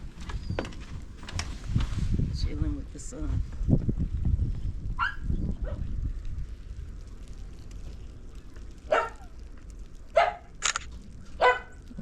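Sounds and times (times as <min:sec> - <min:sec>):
steady low rumble: 0:00.8 - 0:12.0
faint crackling: 0:03.0 - 0:12.0
dog barking: 0:05.0 - 0:05.8, 0:08.9 - 0:09.2, 0:10.2 - 0:10.5, 0:11.4 - 0:11.8.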